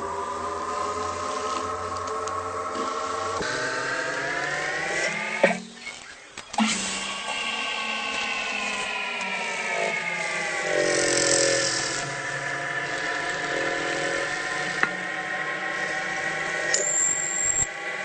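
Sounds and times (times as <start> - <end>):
metal lathe whine: 0.0 - 18.0.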